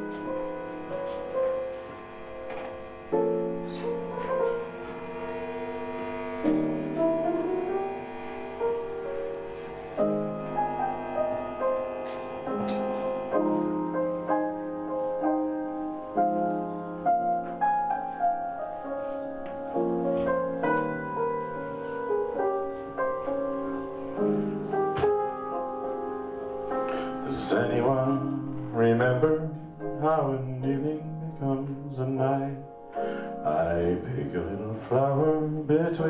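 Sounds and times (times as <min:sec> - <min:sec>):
slow instrumental band music: 0:06.3 - 0:29.8.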